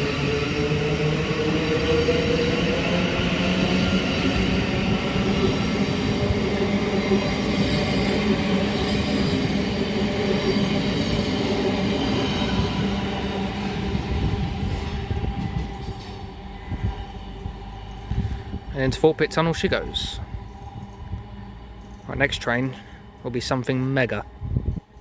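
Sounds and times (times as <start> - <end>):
train traction motor whine: 0.0 - 23.5
wheels rumbling on rails: 0.0 - 25.0.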